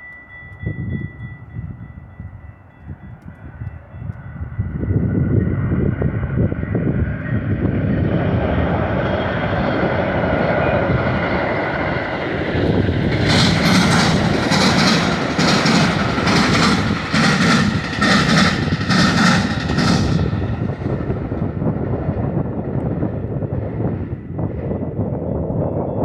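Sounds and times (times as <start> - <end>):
train passing rumble: 0.0 - 26.0
wheels clattering over track: 11.2 - 20.3.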